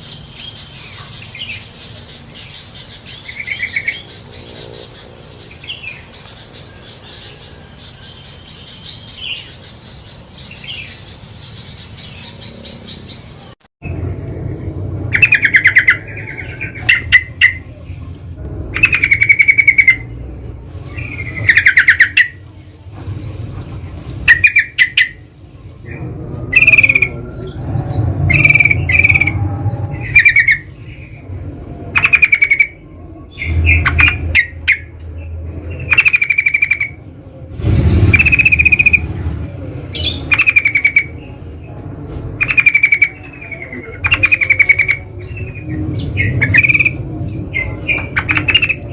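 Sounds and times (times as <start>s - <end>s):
bulbuls chattering calls: 15.1s - 22.4s, 23.8s - 37.0s, 37.6s - 41.5s, 42.2s - 48.9s.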